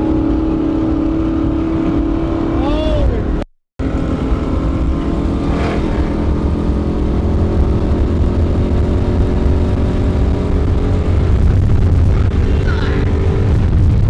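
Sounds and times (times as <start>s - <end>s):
deep exhaust rumble: 0.0s - 14.0s.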